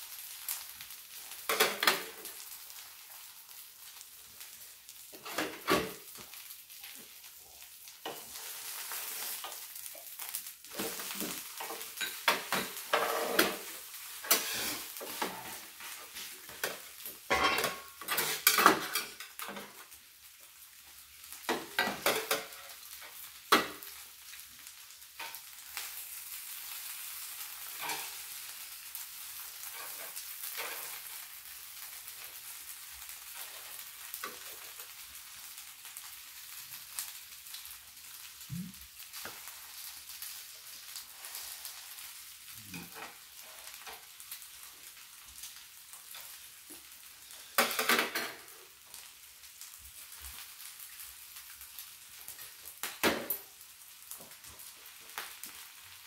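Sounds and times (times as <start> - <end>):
pancake sizzling on griddle: 0.0 - 56.0.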